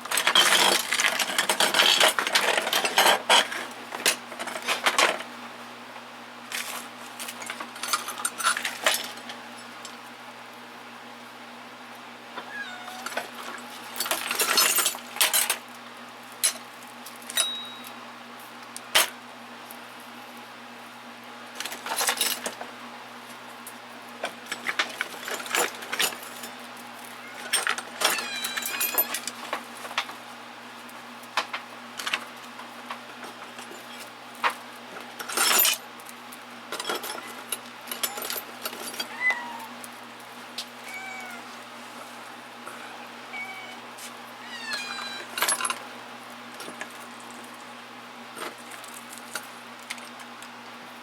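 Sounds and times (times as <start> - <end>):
hand tools clinking in toolbox: 0.1 - 5.2, 13.0 - 15.6, 27.3 - 29.4, 35.1 - 35.8, 36.7 - 39.6, 44.7 - 45.8.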